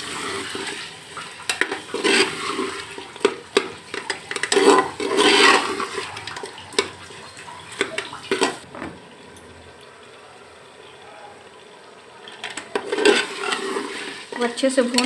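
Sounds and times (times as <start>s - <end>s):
meat sizzling in oil: 0.0s - 15.0s
metal spoon scraping a pot: 1.4s - 7.0s, 12.3s - 15.0s.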